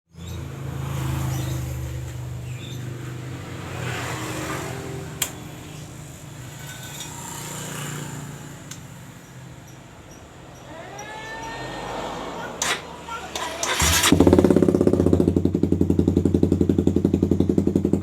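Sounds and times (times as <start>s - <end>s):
motorcycle engine running: 12.6s - 18.0s.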